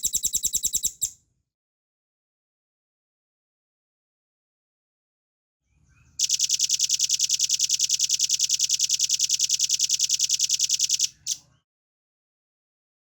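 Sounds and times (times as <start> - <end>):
bird singing a fast trill: 0.0 - 1.1.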